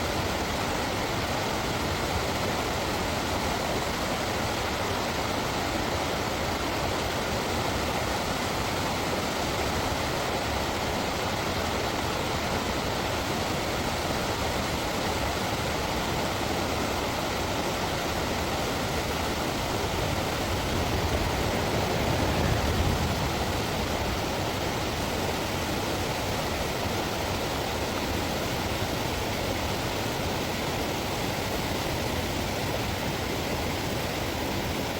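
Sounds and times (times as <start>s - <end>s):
river water rushing over rapids: 0.1s - 34.9s
low rumble: 19.8s - 25.8s.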